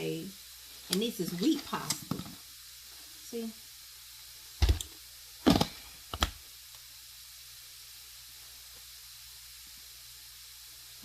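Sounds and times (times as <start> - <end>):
faint steady hiss: 0.0 - 11.0
pasta boxes knocking on counter: 4.6 - 6.4.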